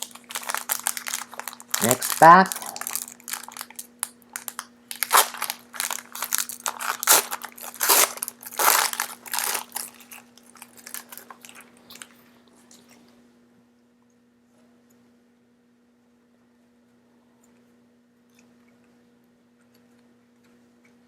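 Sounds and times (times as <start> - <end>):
foil wrapper crinkling: 0.0 - 12.2.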